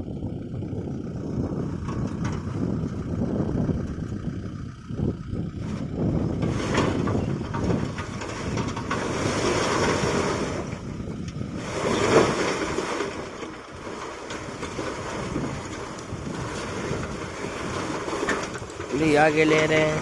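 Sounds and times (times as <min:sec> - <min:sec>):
stones tumbling from trolley: 0:01.5 - 0:03.2, 0:05.6 - 0:20.0.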